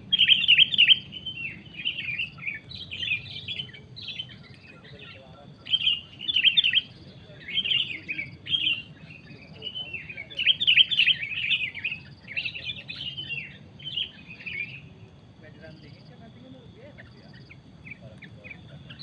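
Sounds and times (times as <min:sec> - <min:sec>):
bulbuls chattering: 0:00.0 - 0:19.0.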